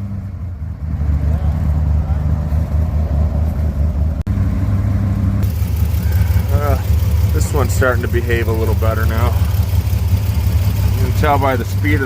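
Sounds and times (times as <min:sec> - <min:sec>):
engine idling unevenly: 0:05.4 - 0:12.0.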